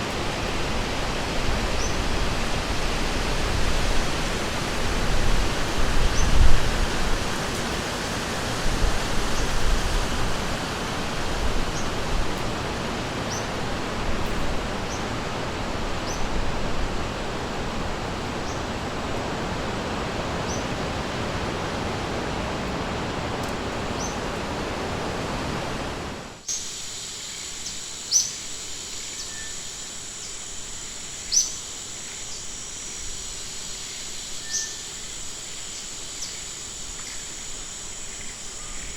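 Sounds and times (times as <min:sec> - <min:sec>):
rushing river water: 0:00.0 - 0:26.5
insect drone: 0:00.0 - 0:38.9
bird chirps: 0:31.3 - 0:32.4, 0:34.4 - 0:35.0.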